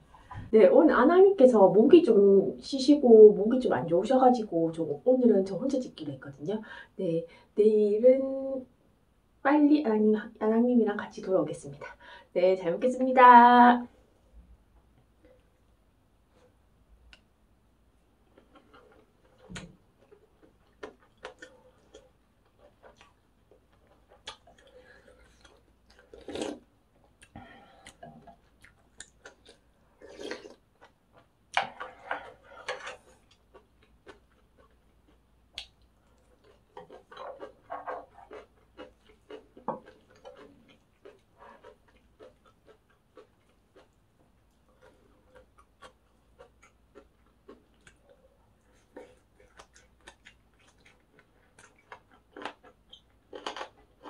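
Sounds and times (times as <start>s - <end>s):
crunchy chewing: 18.3s - 54.0s.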